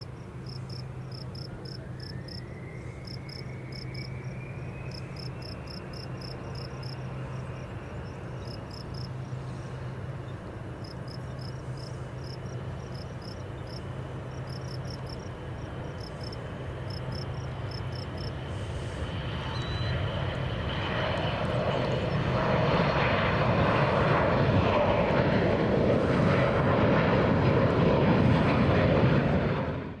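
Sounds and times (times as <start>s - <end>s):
crickets chirping: 0.0s - 20.4s
jet engine whine and roar: 0.0s - 30.0s.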